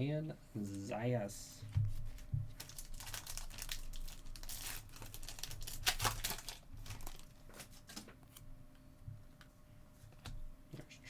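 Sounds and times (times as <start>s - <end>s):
wrapper tearing and crinkling: 2.1s - 8.1s.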